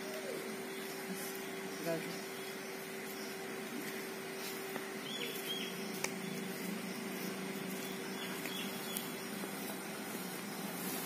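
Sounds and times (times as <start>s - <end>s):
high bird chirps: 5.0s - 9.4s.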